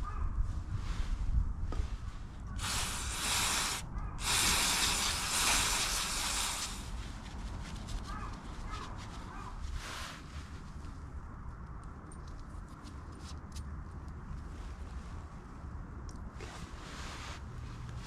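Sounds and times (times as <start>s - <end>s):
steady hissing bursts: 2.5s - 7.0s.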